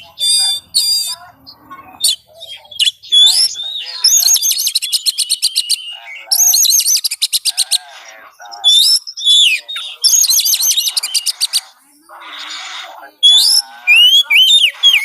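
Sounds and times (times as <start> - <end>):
bird singing whistled song: 2.0 - 7.6, 8.5 - 11.4, 13.2 - 15.0.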